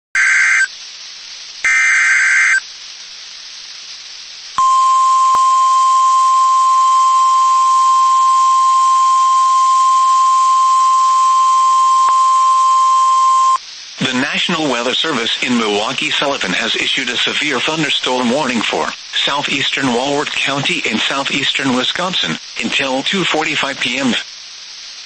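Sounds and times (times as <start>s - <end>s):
radio hiss: 0.2s - 0.8s, 1.5s - 25.0s
steady warning alarm tone: 1.7s - 2.6s, 4.6s - 13.6s
warbling data tones: 1.7s - 2.6s, 4.6s - 13.6s.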